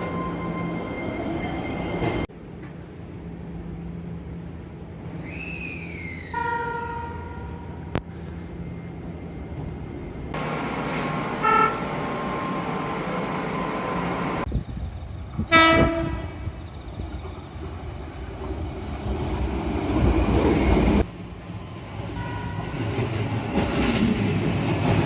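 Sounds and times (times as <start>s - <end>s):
train running noise: 0.0s - 25.0s
electric train horn toots: 6.3s - 7.7s, 11.3s - 12.3s, 15.5s - 16.6s.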